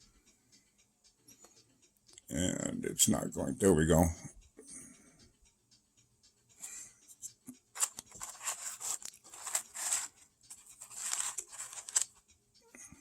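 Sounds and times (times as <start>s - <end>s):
small objects rustling and scraping: 7.8s - 12.2s.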